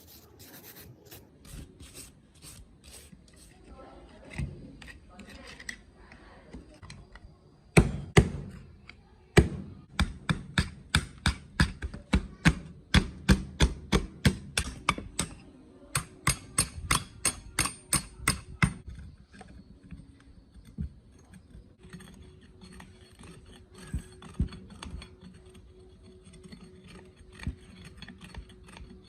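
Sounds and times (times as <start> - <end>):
hammer striking metal: 16.0 - 18.8.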